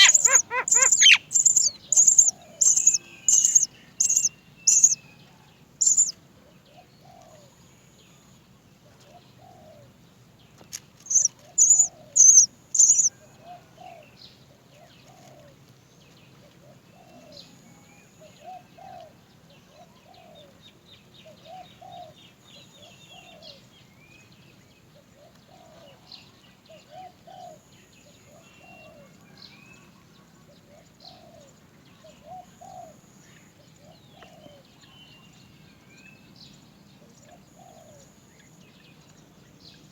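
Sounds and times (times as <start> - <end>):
chick begging cries: 0.0 - 5.0, 5.8 - 6.1, 11.1 - 13.1
faint chirps: 0.0 - 5.0, 5.8 - 6.2, 11.0 - 13.1.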